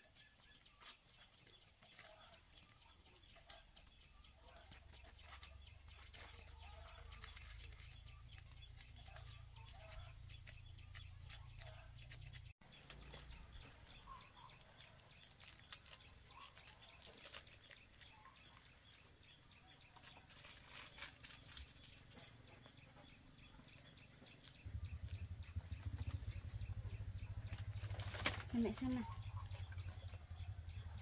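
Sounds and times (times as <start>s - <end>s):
low pulsing hum: 21.6s - 31.0s.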